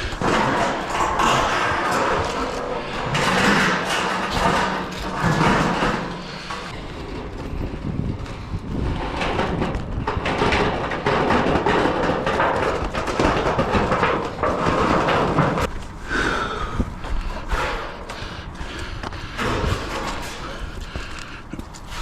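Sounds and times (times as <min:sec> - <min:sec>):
metal roofing panels knocking: 0:00.0 - 0:06.7, 0:08.8 - 0:15.7.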